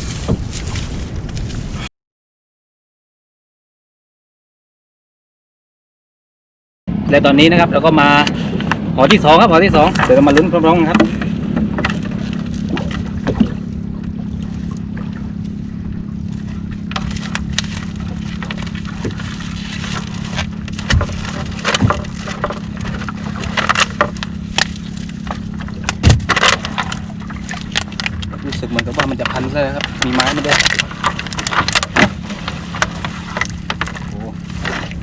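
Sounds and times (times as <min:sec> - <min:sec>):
boat engine running: 0:06.9 - 0:35.0
knocks and clatter of net hauling: 0:08.7 - 0:15.4, 0:16.1 - 0:35.0.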